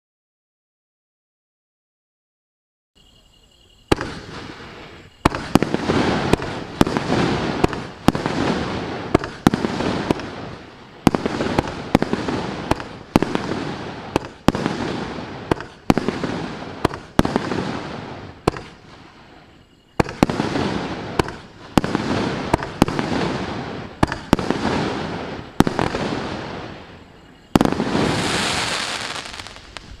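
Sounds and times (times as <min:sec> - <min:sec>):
firework crackle and hiss: 0:03.7 - 0:30.0
firework cake bangs: 0:03.9 - 0:18.8, 0:19.9 - 0:26.7.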